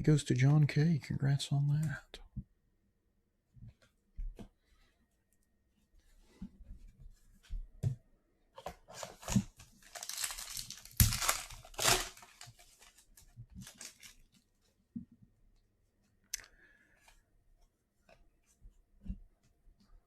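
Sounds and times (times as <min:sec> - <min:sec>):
cards rustling: 0:08.9 - 0:14.4
foil wrapper tearing and crinkling: 0:09.0 - 0:14.3.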